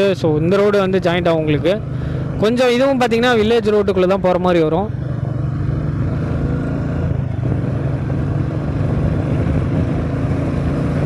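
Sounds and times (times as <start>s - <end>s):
motorcycle engine cruising: 0.0s - 11.0s
road noise: 0.0s - 11.0s
wind noise: 5.3s - 11.0s.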